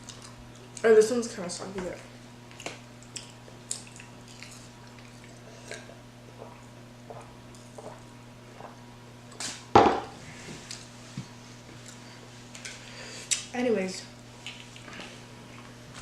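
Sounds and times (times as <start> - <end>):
chewing and mouth smacks: 0.0 - 0.8, 2.5 - 9.6, 11.7 - 12.7.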